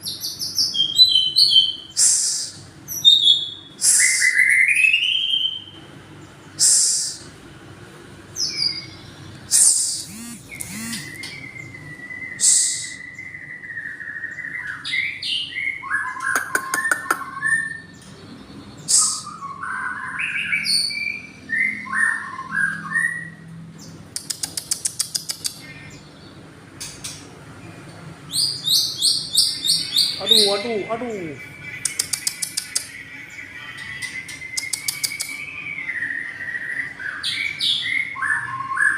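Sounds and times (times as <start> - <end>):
songbird singing whistled notes: 8.4 - 23.6, 28.3 - 38.9
short harsh bird notes: 8.5 - 18.0, 18.8 - 21.1
bird clicking rattles: 24.1 - 25.6, 31.9 - 32.8, 34.6 - 35.4.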